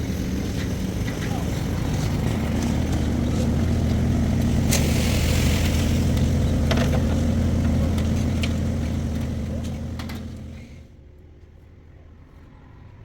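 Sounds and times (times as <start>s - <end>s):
engine running steadily: 0.0s - 11.0s
sharp clatter: 0.5s - 10.9s.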